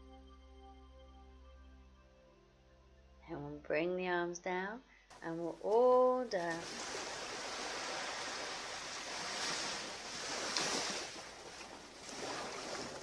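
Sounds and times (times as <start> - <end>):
ocean waves washing on beach: 5.8 - 13.0.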